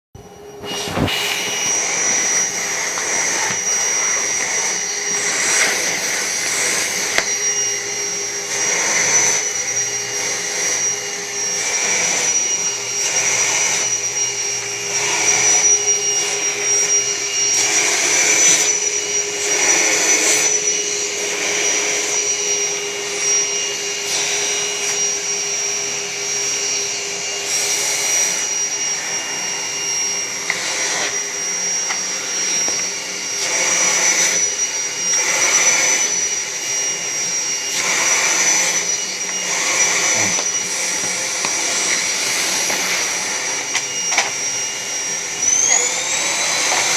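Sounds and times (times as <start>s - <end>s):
vacuum cleaner running: 0.2s - 46.9s.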